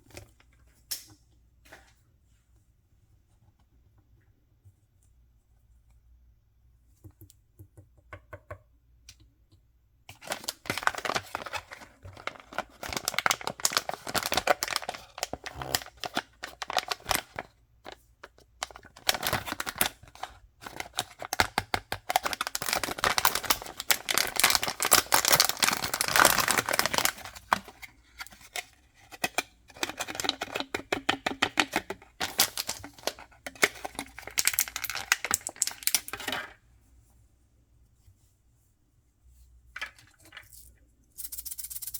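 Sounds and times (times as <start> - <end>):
packaging tearing and crinkling: 10.2 - 17.4, 18.9 - 27.8, 32.2 - 36.1.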